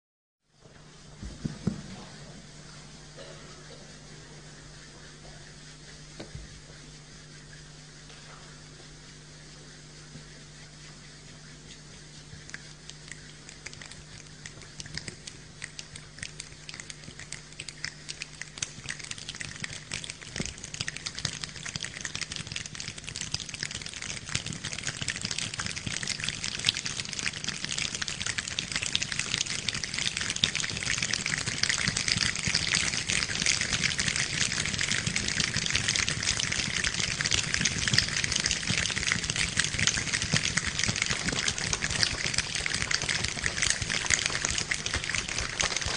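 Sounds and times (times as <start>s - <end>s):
human imitation of rain: 12.6s - 45.9s.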